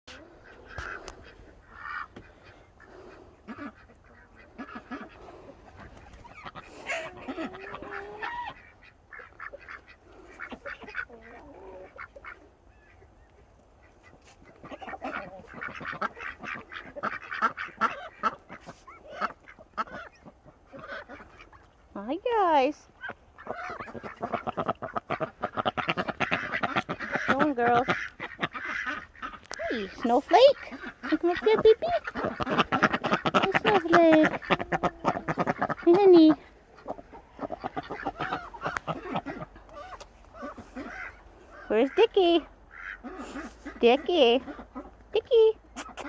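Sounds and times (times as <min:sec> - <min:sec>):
geese honking: 0:00.1 - 0:13.1, 0:13.8 - 0:46.0
ducks quacking: 0:00.1 - 0:46.0.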